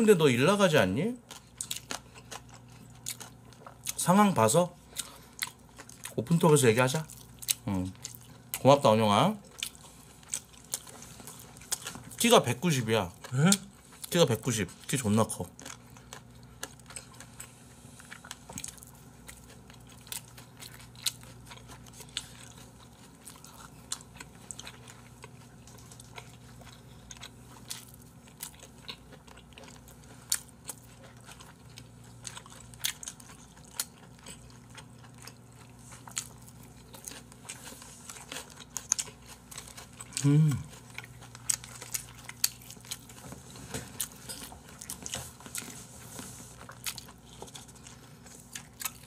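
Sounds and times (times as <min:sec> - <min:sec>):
close chewing and biting: 0:01.2 - 0:04.1, 0:04.8 - 0:08.7, 0:09.4 - 0:49.0.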